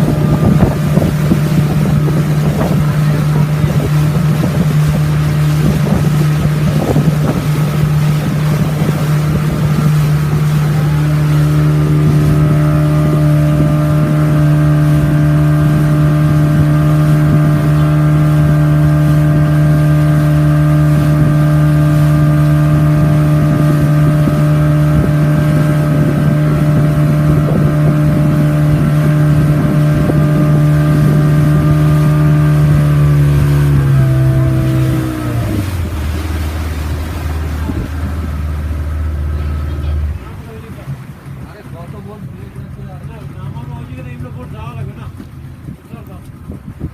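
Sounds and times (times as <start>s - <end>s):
motorboat engine humming: 0.0s - 46.9s
water noise: 0.0s - 46.9s
wind: 0.0s - 46.9s
higher-pitched engine tone: 7.9s - 41.0s.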